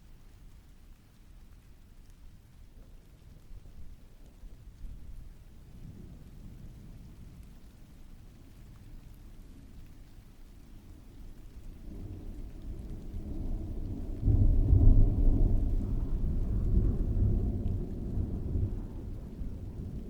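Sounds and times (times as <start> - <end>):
steady rain: 0.0 - 20.0
thunder rumbling: 11.5 - 20.0.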